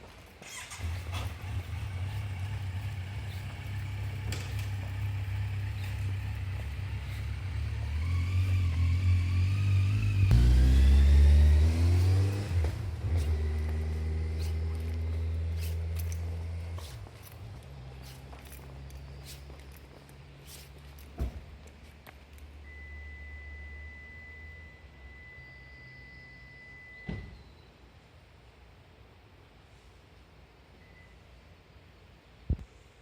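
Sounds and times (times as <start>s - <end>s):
car engine accelerating: 0.4s - 21.0s.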